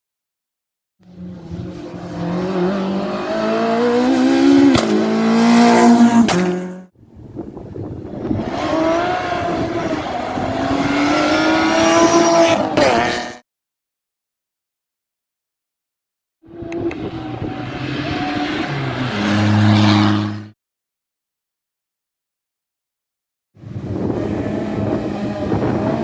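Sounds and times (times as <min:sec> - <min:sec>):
rally car engine accelerating: 0:01.0 - 0:06.9, 0:07.7 - 0:13.4, 0:16.5 - 0:20.5, 0:23.6 - 0:26.0.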